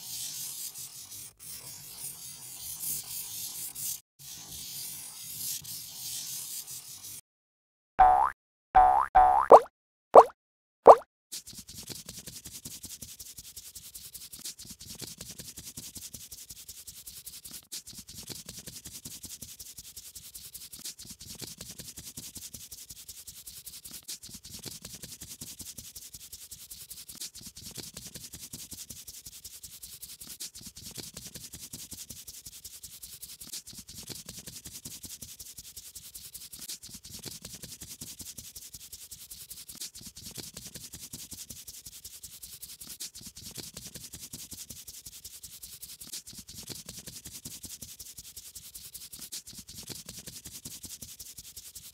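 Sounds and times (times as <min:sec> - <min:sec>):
brush rubbing on paper: 0:00.0 - 0:07.2, 0:11.3 - 0:51.9.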